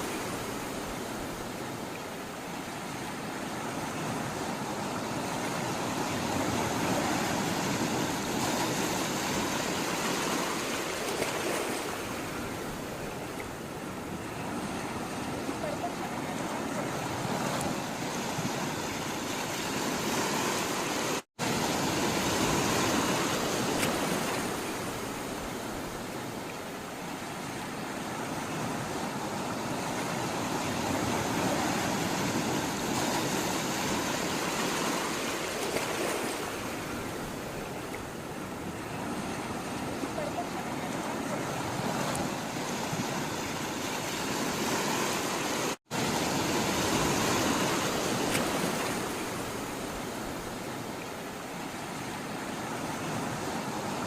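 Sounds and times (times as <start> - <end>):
sea water rushing: 0.0 - 54.0.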